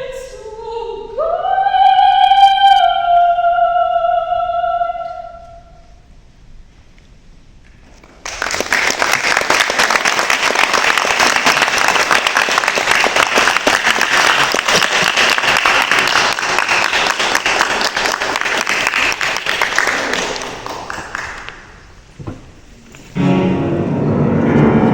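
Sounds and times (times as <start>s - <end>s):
audience applauding: 8.1s - 21.8s.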